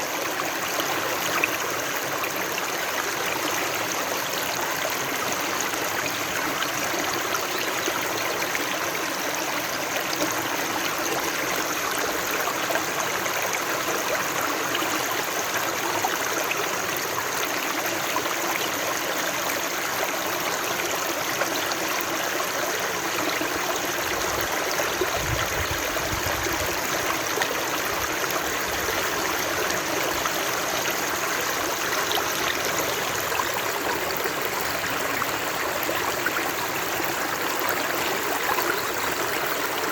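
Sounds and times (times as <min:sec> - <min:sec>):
running water rushing: 0:22.4 - 0:39.9.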